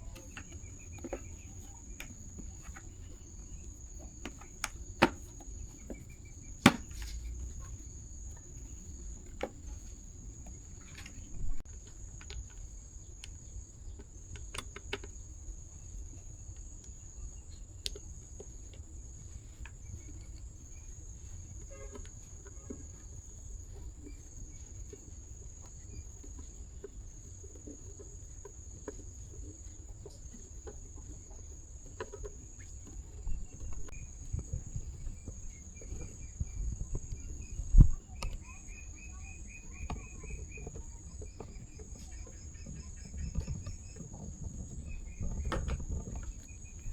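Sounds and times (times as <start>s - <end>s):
crickets chirring: 0.0s - 46.9s
sharp knock: 6.7s - 7.1s.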